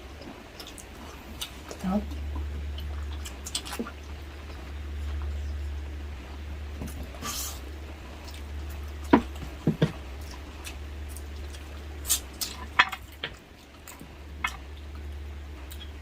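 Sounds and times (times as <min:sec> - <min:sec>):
steady low hum: 0:00.0 - 0:16.0
chewing food clicks and smacks: 0:00.2 - 0:01.8, 0:10.2 - 0:16.0.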